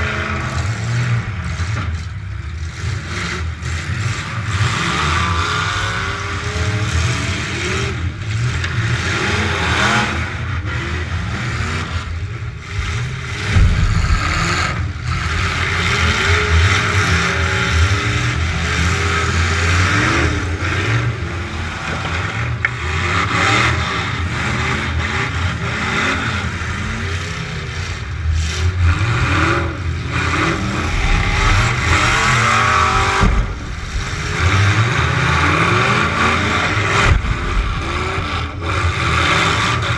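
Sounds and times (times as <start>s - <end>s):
truck engine revving hard: 0.0s - 39.9s
sharp knocks: 12.8s - 16.1s, 30.9s - 35.0s.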